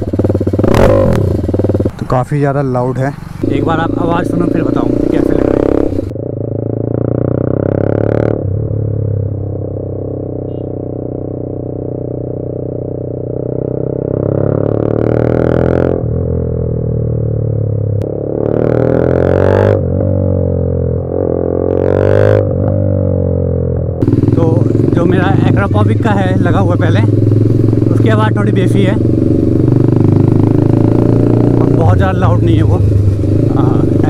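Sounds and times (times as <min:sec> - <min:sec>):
motorcycle engine idling and revving: 0:00.0 - 0:34.0.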